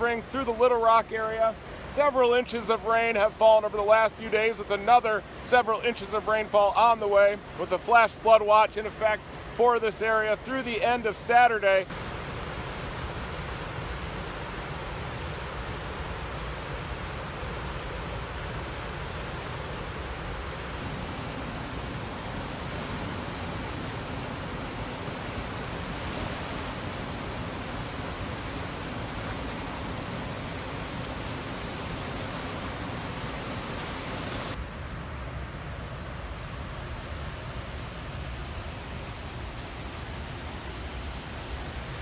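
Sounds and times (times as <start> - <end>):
water rushing through spillway: 11.8 - 35.1
high hiss: 20.8 - 34.6.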